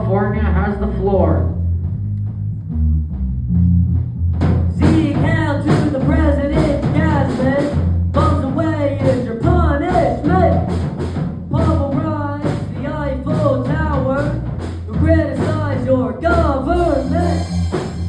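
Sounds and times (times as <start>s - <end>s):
person singing: 4.8s - 10.7s, 11.6s - 17.7s.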